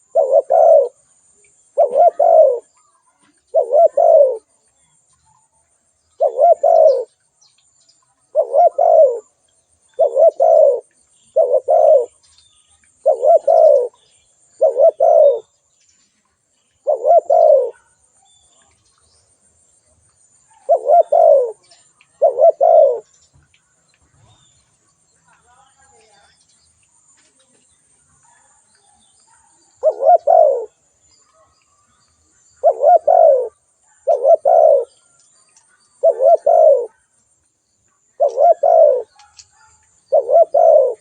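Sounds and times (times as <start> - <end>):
dove cooing: 0.0 - 1.0, 1.7 - 4.6, 6.2 - 7.2, 8.2 - 12.2, 13.0 - 14.0, 14.6 - 15.5, 16.8 - 18.0, 20.5 - 23.1, 28.2 - 31.5, 32.6 - 35.2, 35.8 - 37.1, 38.2 - 41.0.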